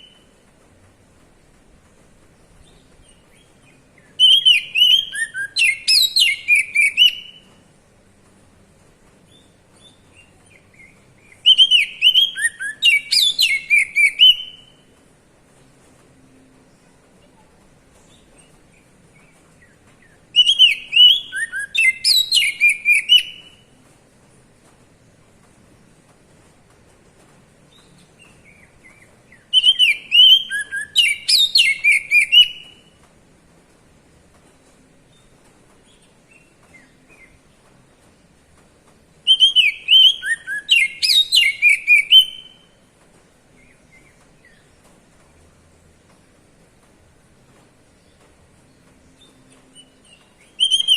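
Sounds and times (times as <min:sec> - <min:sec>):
bird singing whistled notes: 0:00.0 - 0:00.4, 0:02.6 - 0:07.6, 0:09.3 - 0:14.9, 0:18.0 - 0:23.7, 0:27.7 - 0:32.9, 0:39.2 - 0:42.8, 0:48.8 - 0:50.9.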